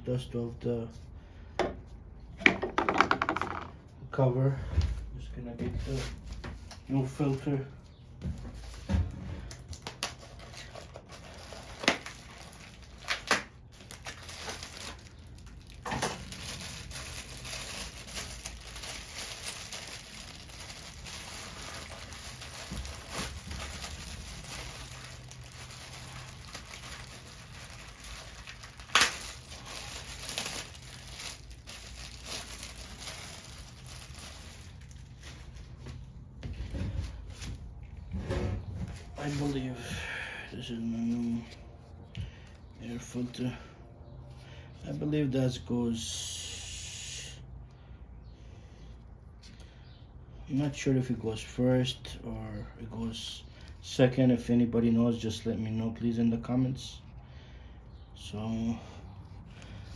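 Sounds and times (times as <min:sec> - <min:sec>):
packaging crinkling: 0:09.6 - 0:36.0.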